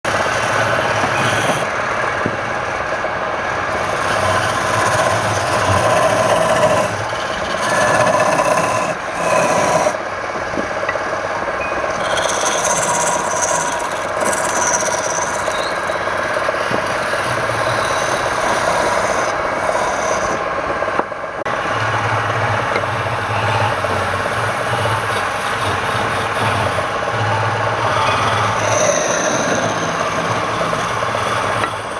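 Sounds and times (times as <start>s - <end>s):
tool rasping on spinning wood: 0.1s - 1.8s, 3.7s - 10.1s, 11.8s - 20.5s, 22.4s - 31.9s
wood lathe motor hum: 0.1s - 20.8s, 21.4s - 31.9s.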